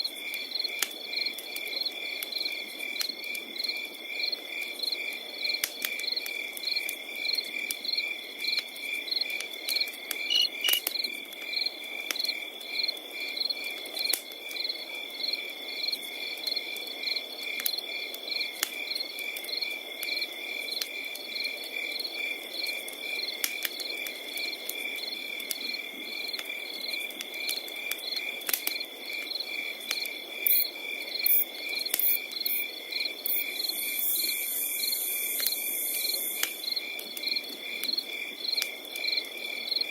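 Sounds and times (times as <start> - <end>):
crickets chirping: 6.7 - 13.5, 29.4 - 39.9
hissing insect sound: 10.2 - 10.9, 30.4 - 36.8
wood fire crackling: 26.3 - 28.8.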